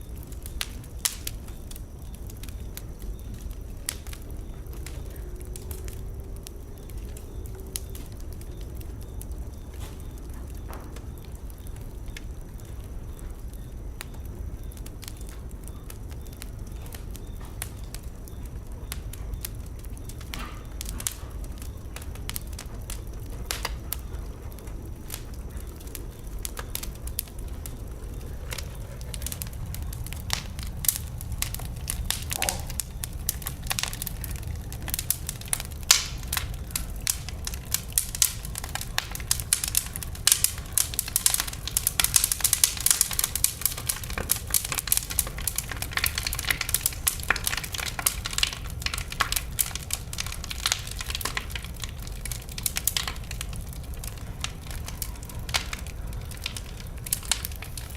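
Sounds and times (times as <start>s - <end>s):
wood fire crackling: 0.0s - 57.9s
low rumble: 21.0s - 41.6s.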